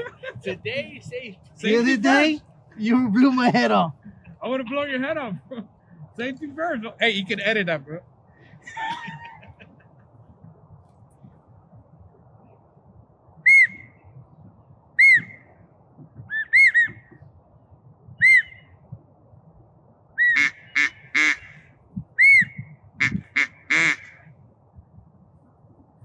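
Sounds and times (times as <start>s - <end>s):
duck whistle call: 13.4s - 13.9s, 15.0s - 15.4s, 16.3s - 17.0s, 18.2s - 18.6s, 20.2s - 21.6s, 22.2s - 24.2s.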